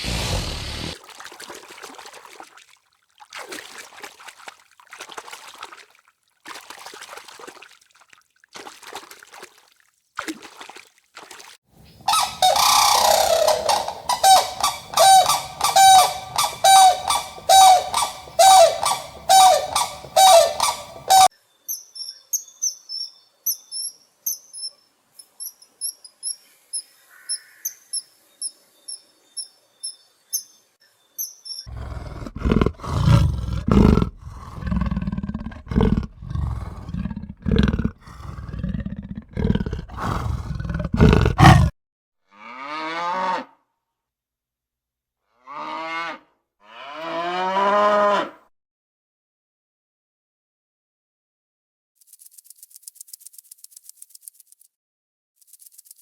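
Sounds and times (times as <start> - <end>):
breathy animal calls: 0.0 - 1.0, 12.1 - 21.3, 31.7 - 41.7
loud pitched animal call: 0.0 - 1.0, 12.1 - 21.3, 31.7 - 41.7.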